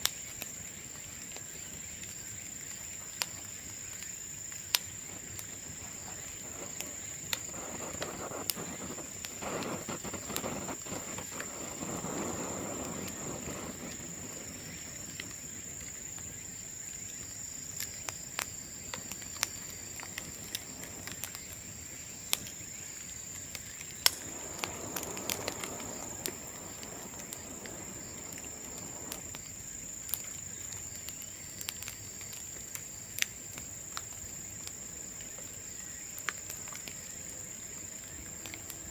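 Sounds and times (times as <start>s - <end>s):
bonfire crackling: 0.0s - 38.9s
sharp pops: 4.7s - 16.3s, 17.8s - 21.7s, 22.3s - 34.1s
rushing noise: 24.1s - 30.0s.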